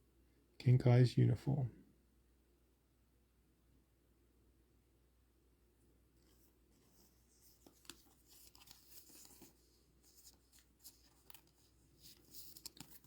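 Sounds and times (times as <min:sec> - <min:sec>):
trading cards rustling and clicking: 0:06.2 - 0:13.0.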